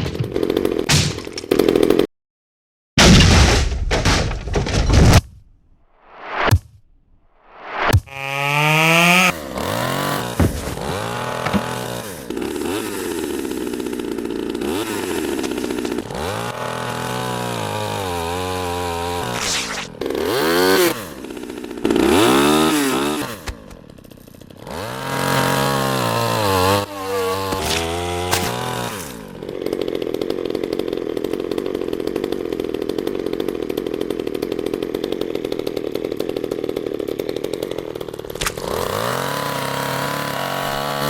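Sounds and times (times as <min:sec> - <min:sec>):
chainsaw engine revving: 0:00.2 - 0:02.1, 0:07.7 - 0:41.0.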